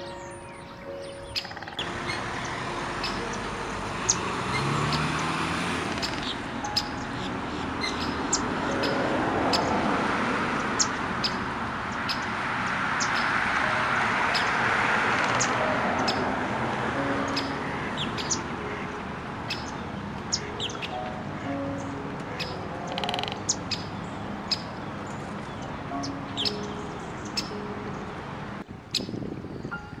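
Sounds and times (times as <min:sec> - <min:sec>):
small birds chirping: 0:00.0 - 0:09.8, 0:10.6 - 0:12.3, 0:12.9 - 0:13.4, 0:17.2 - 0:28.1.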